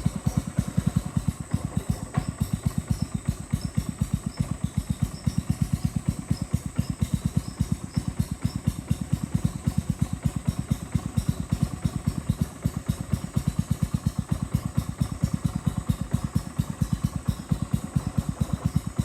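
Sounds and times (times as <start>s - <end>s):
small boat engine thudding: 0.0s - 19.0s.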